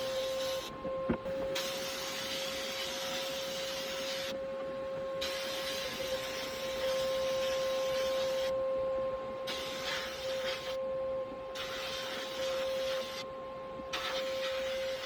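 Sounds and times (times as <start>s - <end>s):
steady machine hum: 0.0s - 15.0s
loud hissing noise: 1.6s - 4.4s, 11.6s - 13.2s.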